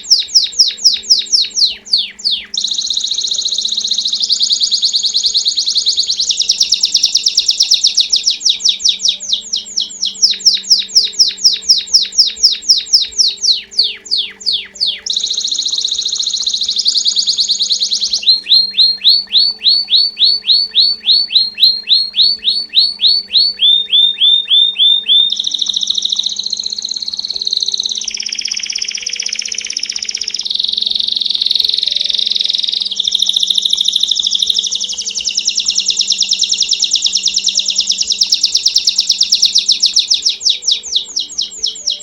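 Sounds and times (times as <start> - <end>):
canary singing trills: 0.0 - 42.0.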